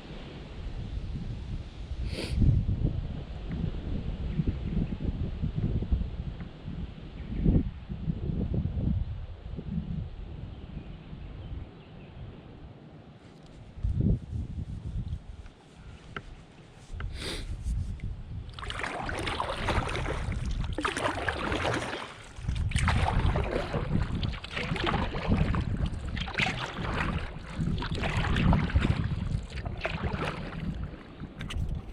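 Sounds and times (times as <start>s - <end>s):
wind rumble on microphone: 0.0s - 31.9s
paddle strokes splashing in water: 15.1s - 31.9s.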